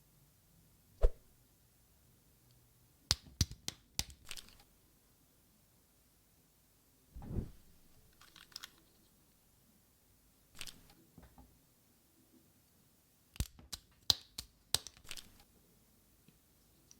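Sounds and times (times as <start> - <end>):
soft thump: 7.2 - 7.7.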